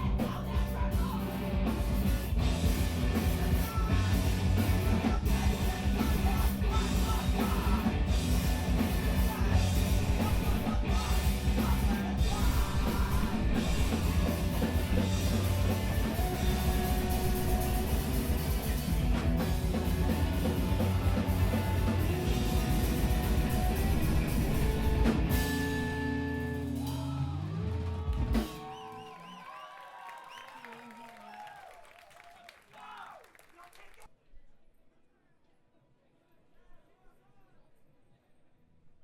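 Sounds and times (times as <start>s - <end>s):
screamo band playing live: 0.0s - 29.1s.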